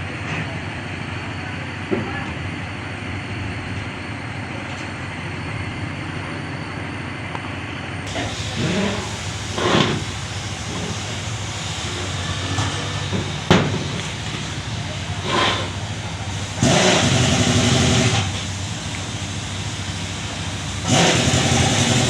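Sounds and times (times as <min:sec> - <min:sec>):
vehicle engine running: 0:07.4 - 0:22.0.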